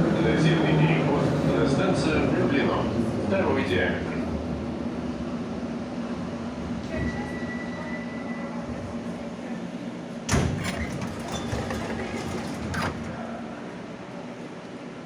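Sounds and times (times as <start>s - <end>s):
sliding doors opening with clatter: 10.2s - 13.8s.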